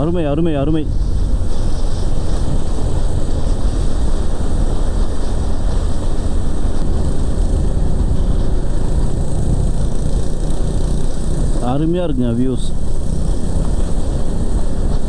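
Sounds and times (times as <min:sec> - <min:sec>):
motorcycle road noise: 0:00.0 - 0:15.0
wind rush: 0:00.0 - 0:15.0.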